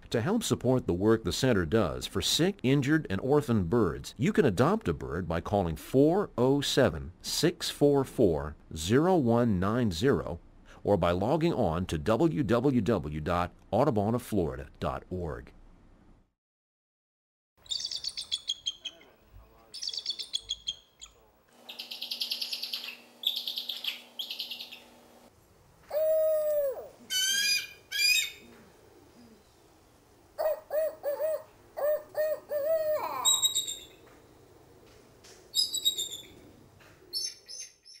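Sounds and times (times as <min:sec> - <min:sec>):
bird of prey chattering: 0:17.7 - 0:19.2, 0:19.8 - 0:24.8
shrill high bird cries: 0:25.9 - 0:28.4, 0:30.4 - 0:34.0, 0:35.6 - 0:36.4
low owl-like hoots: 0:25.9 - 0:29.8, 0:30.4 - 0:33.5.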